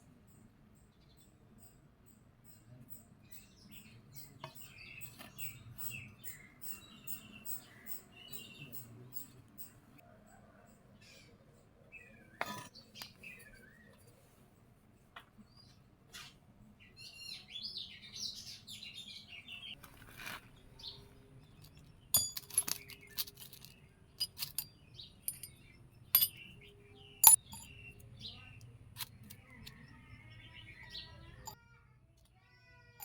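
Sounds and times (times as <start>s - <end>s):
small birds chirping: 0.1s - 10.0s, 10.6s - 14.6s, 15.2s - 31.6s
metallic clinks and taps: 21.6s - 26.6s, 27.2s - 28.1s.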